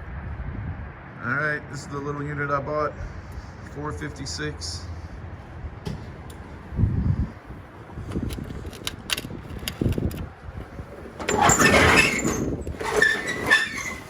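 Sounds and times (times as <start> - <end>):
metal roll-up door rattling: 9.3 - 14.0
door squealing as it rolls: 10.9 - 14.0.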